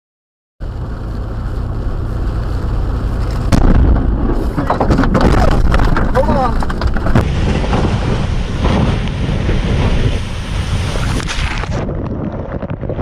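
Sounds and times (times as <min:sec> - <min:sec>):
loud low rumbling: 0:00.6 - 0:13.0
sharp crack: 0:03.2 - 0:09.2.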